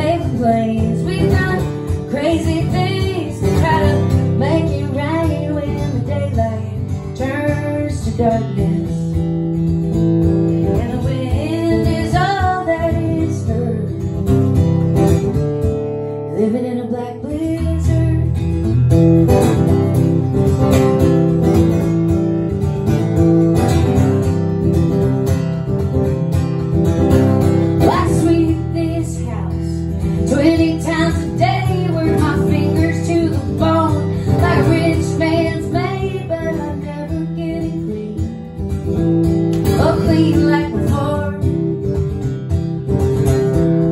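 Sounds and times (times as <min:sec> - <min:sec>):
woman singing: 0:00.0 - 0:09.4, 0:10.5 - 0:14.5, 0:16.2 - 0:18.8, 0:27.6 - 0:42.4
strummed acoustic guitar: 0:00.0 - 0:43.9.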